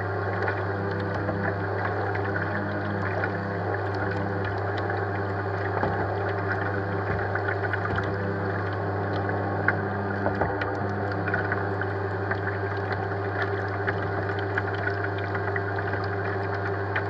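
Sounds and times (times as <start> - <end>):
electric motors humming: 0.0 - 17.0
water lapping against hull: 0.0 - 17.0.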